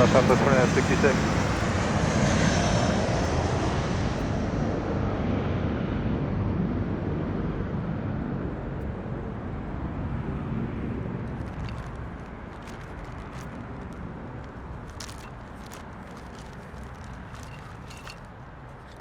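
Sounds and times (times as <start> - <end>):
jet engines roaring at takeoff: 0.0 - 12.6.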